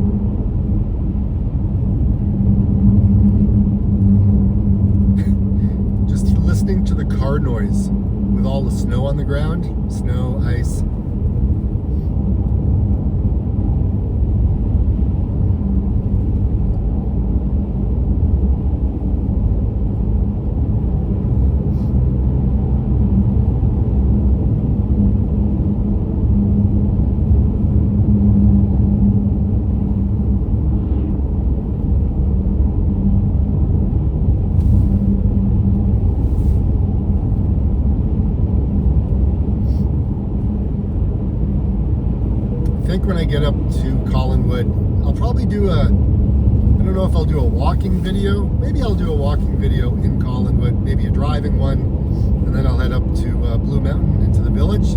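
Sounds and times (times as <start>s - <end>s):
tyres on snowy road: 0.0s - 54.9s
steady hum: 27.0s - 54.9s.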